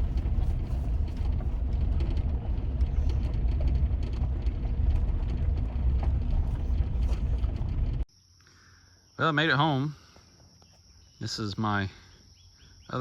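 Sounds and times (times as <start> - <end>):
road noise: 0.0 - 8.1
truck engine rumble: 0.0 - 8.1.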